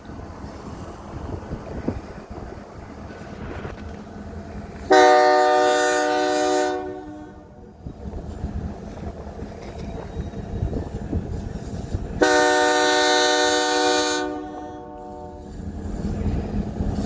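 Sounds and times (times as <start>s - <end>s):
train rumbling along track: 0.0s - 17.0s
train horn blast: 4.9s - 7.6s, 12.2s - 15.5s.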